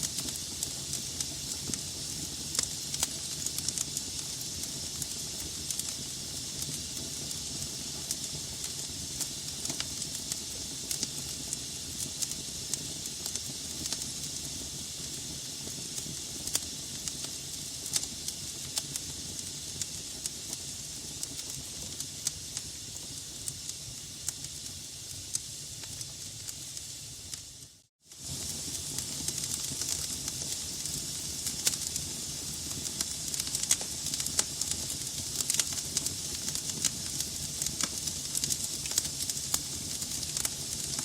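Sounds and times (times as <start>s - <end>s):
fire crackles and pops: 0.0s - 41.0s
logs burning in fireplace: 0.0s - 41.0s.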